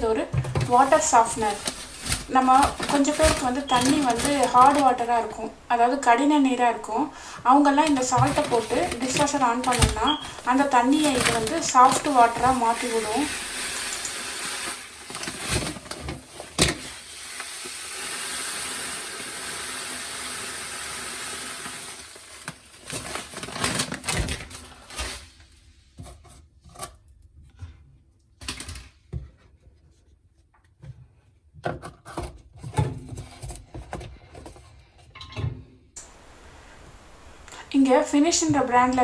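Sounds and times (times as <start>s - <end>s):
salt pouring into dishwasher: 7.1s - 23.2s.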